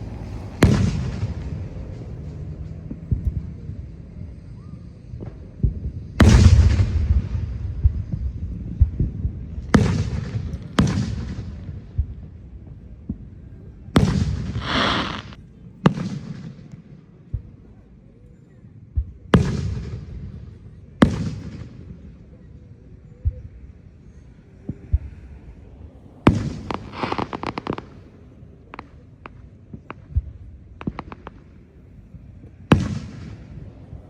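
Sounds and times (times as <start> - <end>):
fireworks hissing crackle: 0.0 - 4.6, 14.0 - 15.4, 25.0 - 33.8
fireworks bangs with rumbling echo: 0.0 - 18.1, 18.7 - 34.0.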